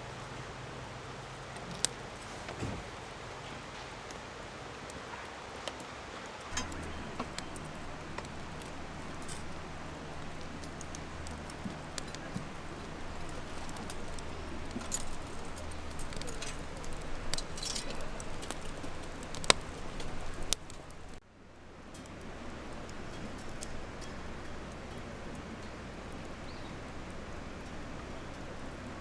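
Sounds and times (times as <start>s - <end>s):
low hum: 6.5s - 21.2s
objects clinking and clicking: 6.5s - 21.2s.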